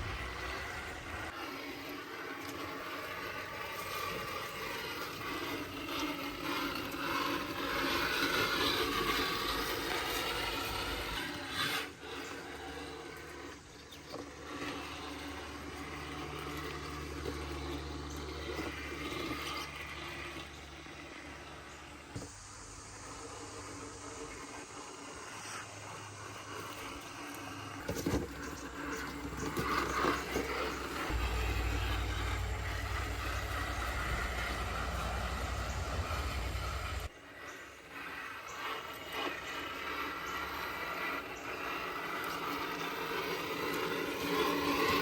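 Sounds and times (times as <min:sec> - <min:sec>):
rubbing and scraping: 0:00.0 - 0:21.4, 0:24.3 - 0:37.1
small electric motor whining: 0:00.0 - 0:45.0.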